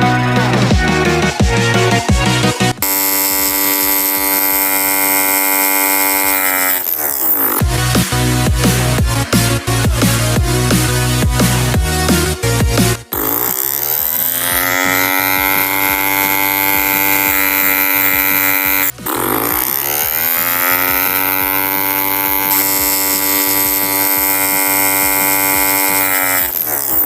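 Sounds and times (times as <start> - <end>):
small drill motor whining: 2.8 - 7.7, 13.1 - 27.0.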